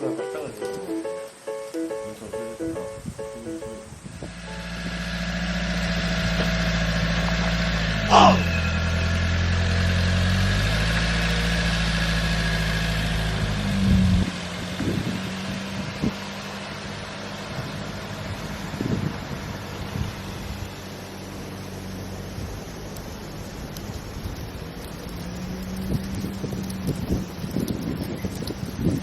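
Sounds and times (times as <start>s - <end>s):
vehicle engine idling: 0.0s - 29.0s
loud sound falling in pitch: 4.3s - 7.2s, 8.0s - 9.3s.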